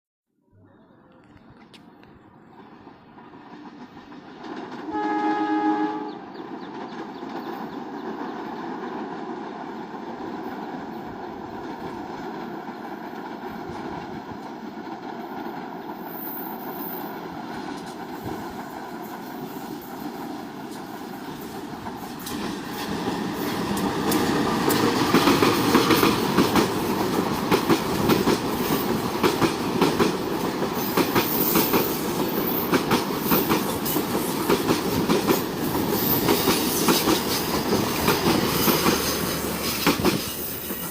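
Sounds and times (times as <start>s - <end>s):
train rumble: 1.0s - 40.9s
train horn: 4.8s - 6.3s.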